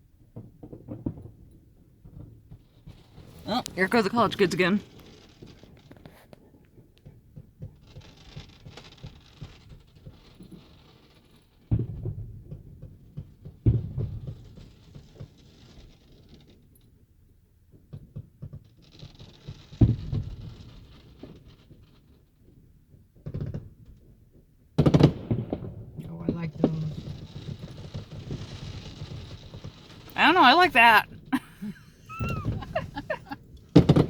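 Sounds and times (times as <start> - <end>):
firework crackling: 2.8 - 6.3, 26.1 - 34.0
firework shells booming: 26.5 - 34.0.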